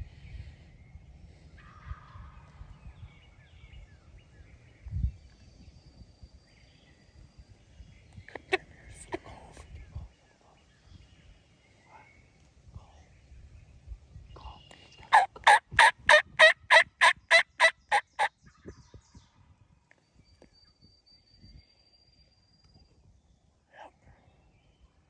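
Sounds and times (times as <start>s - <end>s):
turkey yelps: 15.1s - 18.3s.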